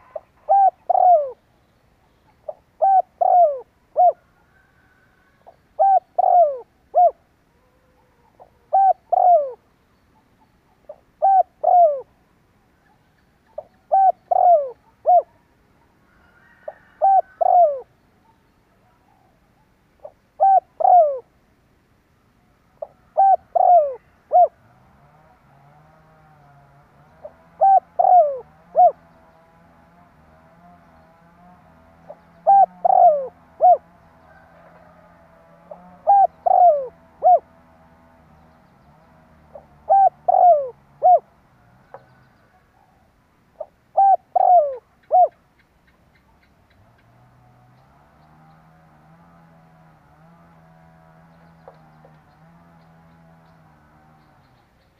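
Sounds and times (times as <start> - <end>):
dove cooing: 0.0 - 1.5, 2.2 - 12.2, 13.6 - 15.4, 16.1 - 21.4, 22.8 - 45.4.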